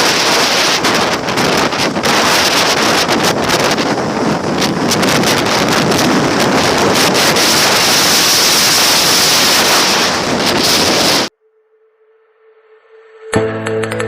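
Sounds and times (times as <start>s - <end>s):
wind buffeting microphone: 0.0s - 11.3s.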